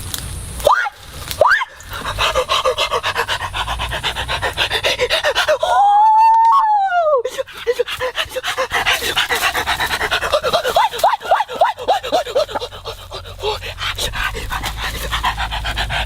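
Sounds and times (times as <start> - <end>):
animal whining: 0.7 - 16.0
animal panting: 1.8 - 5.8, 7.3 - 16.0.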